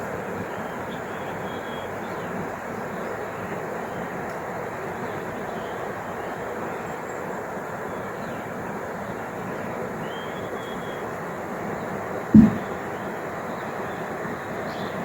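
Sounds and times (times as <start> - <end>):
low thump: 12.4 - 12.7.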